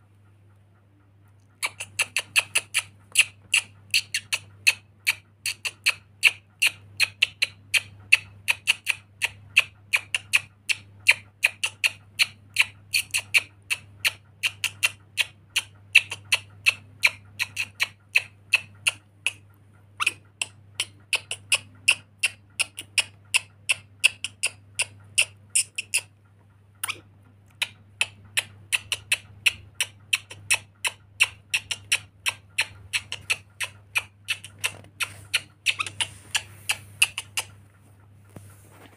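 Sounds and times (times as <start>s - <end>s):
parrot squawking: 30.1s - 37.5s.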